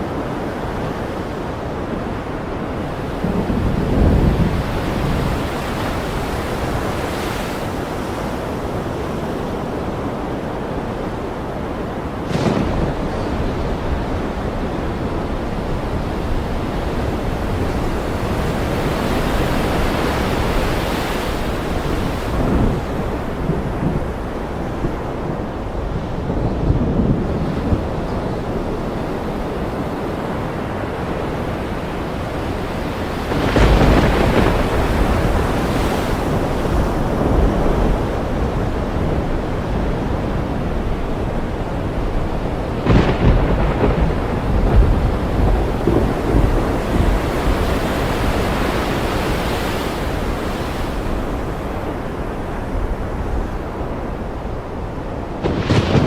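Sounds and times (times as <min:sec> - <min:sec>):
steady rain: 0:00.0 - 0:56.0
thunder: 0:02.9 - 0:07.8, 0:12.0 - 0:29.0, 0:31.6 - 0:49.4, 0:55.3 - 0:56.0.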